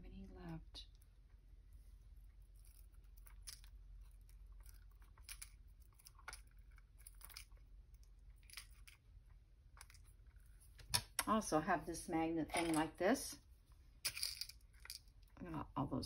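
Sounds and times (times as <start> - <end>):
small metal pieces clicking: 2.6 - 9.0, 14.0 - 15.2.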